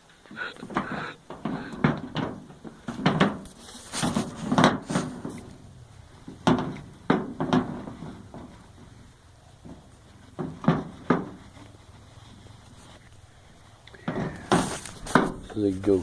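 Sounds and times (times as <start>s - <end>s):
gun clacks and knocks: 0.6s - 5.5s, 14.1s - 15.7s.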